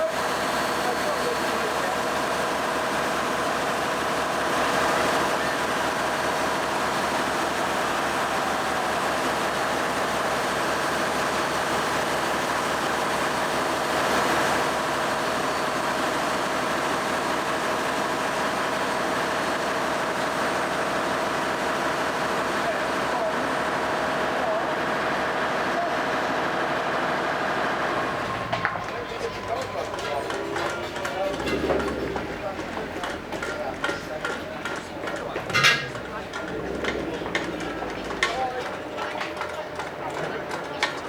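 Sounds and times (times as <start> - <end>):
mechanical drone humming: 28.2 - 39.5.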